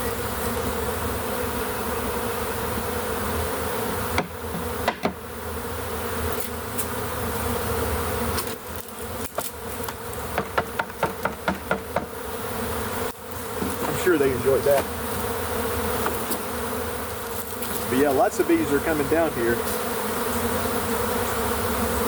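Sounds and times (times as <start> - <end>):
bee swarm buzzing: 0.0 - 22.0
sharp knocks and clicks: 4.2 - 5.2, 10.4 - 12.1.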